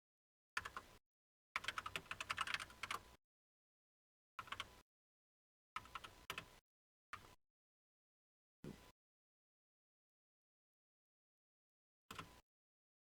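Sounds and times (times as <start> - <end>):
keyboard typing: 1.6 - 3.0.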